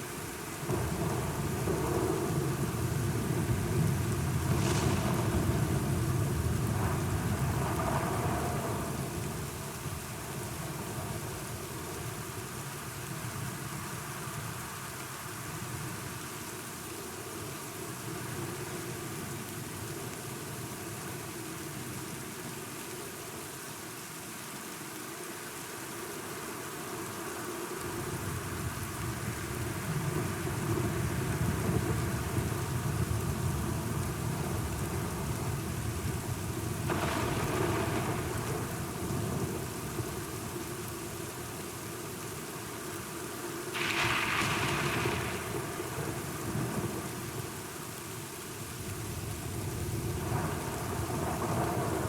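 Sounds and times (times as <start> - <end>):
steady rain: 0.0 - 52.0
thunder rumbling: 0.6 - 11.7, 29.4 - 41.2, 43.8 - 47.6, 49.0 - 52.0.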